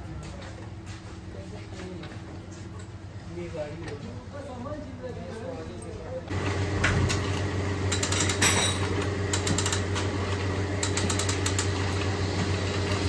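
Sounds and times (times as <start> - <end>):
rapid mechanical clicking: 9.3 - 10.1, 10.8 - 12.2.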